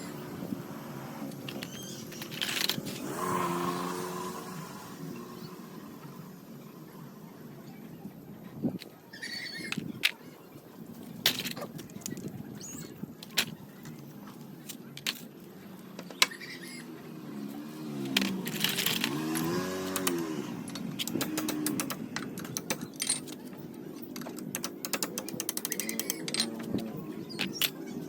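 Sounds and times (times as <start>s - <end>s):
metal tools clinking: 1.5s - 3.0s, 18.0s - 28.0s.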